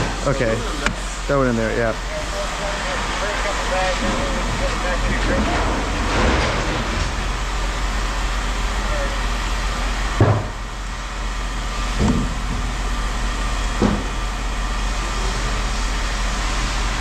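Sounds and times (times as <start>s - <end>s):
steady background hum: 0.0s - 17.0s
scrap metal clanking into bin: 3.9s - 7.2s.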